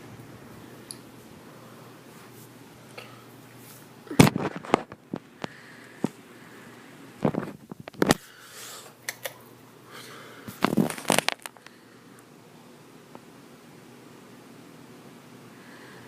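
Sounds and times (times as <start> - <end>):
objects clattering and rustling: 3.7 - 5.3, 10.5 - 11.7.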